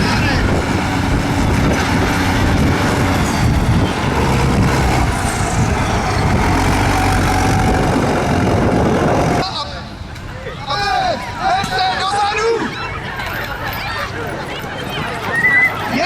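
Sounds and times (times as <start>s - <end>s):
tractor engine running loudly: 0.0s - 9.4s.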